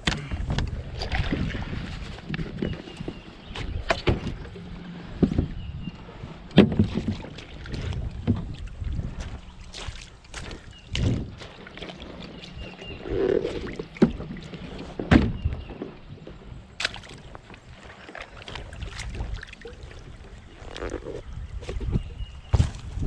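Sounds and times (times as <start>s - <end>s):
wind on microphone: 0.0s - 17.9s, 18.5s - 23.0s
water rushing: 16.8s - 21.2s.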